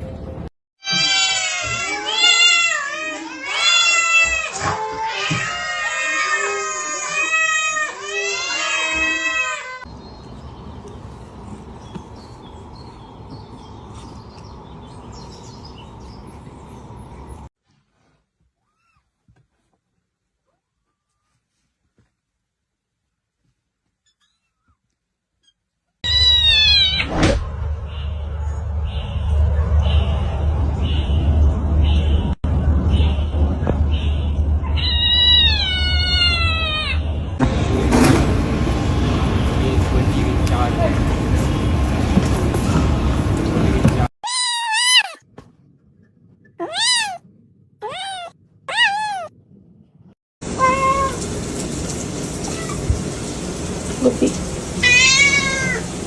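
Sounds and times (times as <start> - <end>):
cat meowing: 0.8 - 9.8, 26.0 - 27.1, 34.6 - 37.0, 44.2 - 45.2, 46.6 - 47.2, 47.8 - 49.3, 50.6 - 51.2, 54.8 - 55.9
small birds chirping: 9.8 - 17.5.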